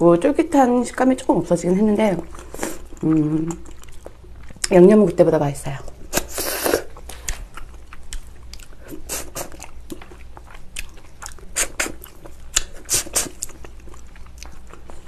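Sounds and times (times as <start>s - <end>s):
wet chewing clicks and smacks: 2.8s - 4.8s, 7.0s - 15.0s.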